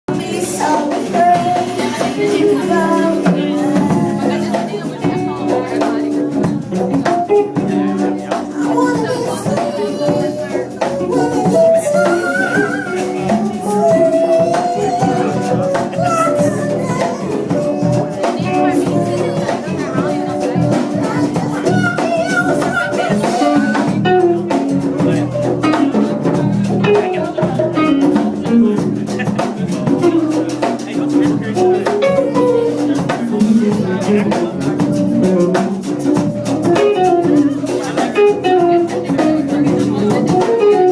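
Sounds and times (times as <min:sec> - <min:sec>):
guitar: 0:00.0 - 0:40.9
live band music: 0:00.0 - 0:40.9
person singing long sliding notes: 0:00.1 - 0:05.4, 0:08.5 - 0:23.9.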